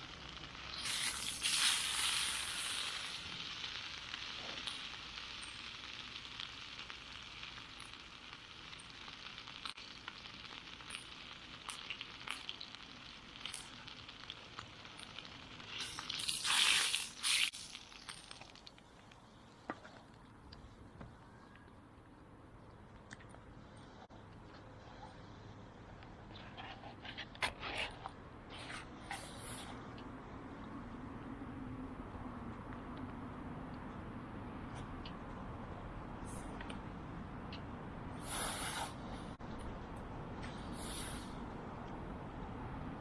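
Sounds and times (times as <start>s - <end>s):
food sizzling on a grill: 0.0s - 18.7s, 38.2s - 38.9s, 40.8s - 41.3s
fire crackles and pops: 0.0s - 24.5s.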